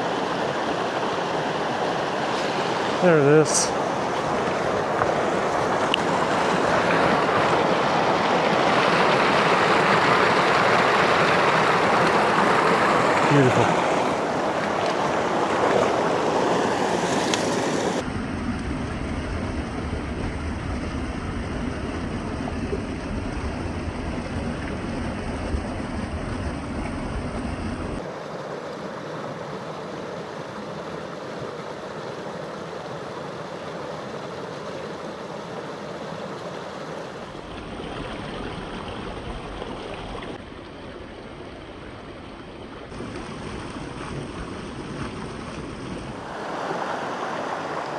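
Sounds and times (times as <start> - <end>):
creek water rushing: 0.0 - 18.1, 28.0 - 47.9.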